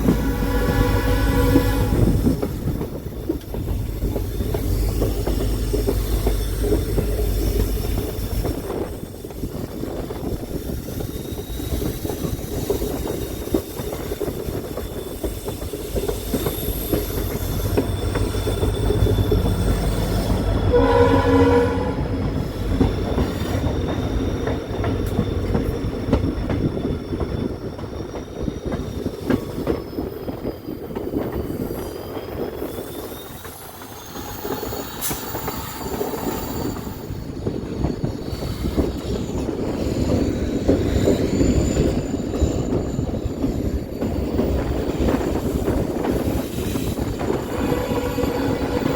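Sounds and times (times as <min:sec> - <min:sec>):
train horn: 0:00.0 - 0:02.4, 0:20.2 - 0:22.3, 0:47.4 - 0:48.9
high wheel squeal: 0:00.0 - 0:21.7, 0:22.3 - 0:48.9
train rumbling along track: 0:00.0 - 0:48.9.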